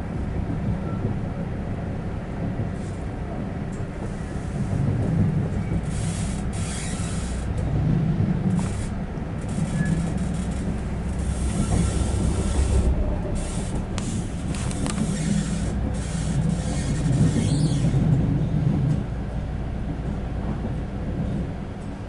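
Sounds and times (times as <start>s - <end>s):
train wheels rumbling on track: 0.0s - 22.0s
high hiss from wheels and rails: 5.8s - 7.5s, 8.5s - 17.9s.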